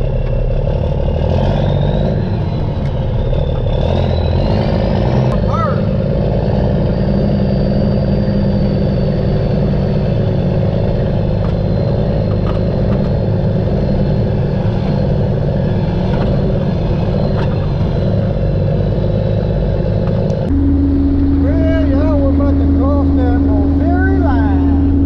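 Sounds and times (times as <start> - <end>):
diesel engine running: 0.0 - 25.0
faint high whine: 20.5 - 25.0.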